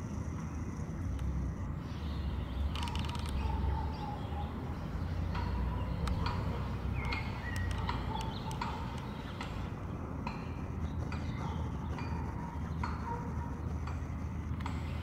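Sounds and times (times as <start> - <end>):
birds chipping and ticking: 0.0 - 15.0
steady low hum: 0.0 - 15.0.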